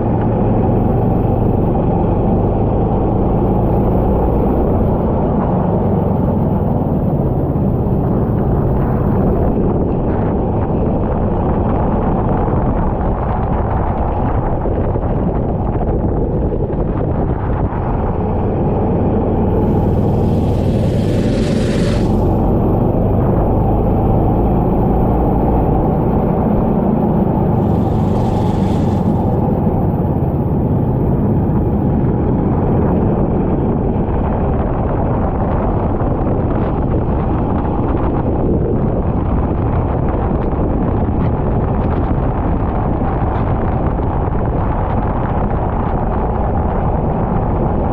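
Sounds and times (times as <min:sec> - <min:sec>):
wind noise on microphone: 0:00.0 - 0:47.9
go-kart engine droning: 0:18.1 - 0:35.3.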